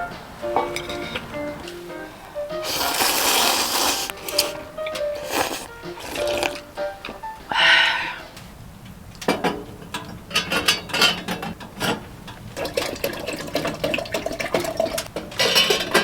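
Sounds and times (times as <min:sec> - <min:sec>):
kitchenware clicking and knocking: 0:00.5 - 0:01.7, 0:09.2 - 0:16.0.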